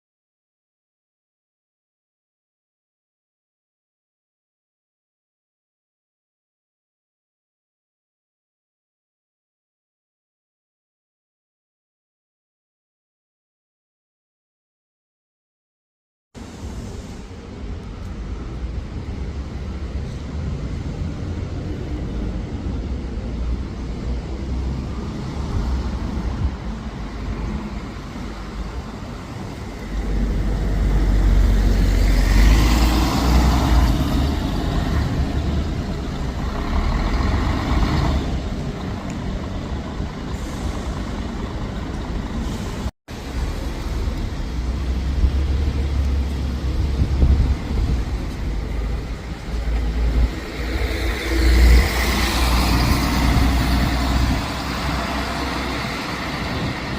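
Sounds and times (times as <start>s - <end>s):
air brakes hissing: 16.4s - 17.3s, 40.2s - 41.4s, 42.4s - 42.9s
bus engine rumble: 16.4s - 56.9s.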